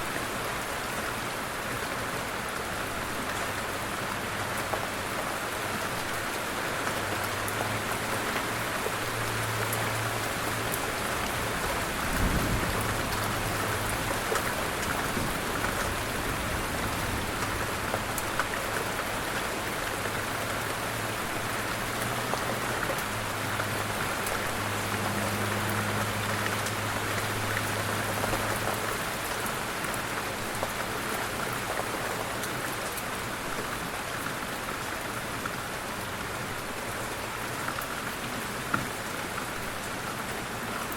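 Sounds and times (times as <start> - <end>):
light rain falling: 0.0 - 40.9.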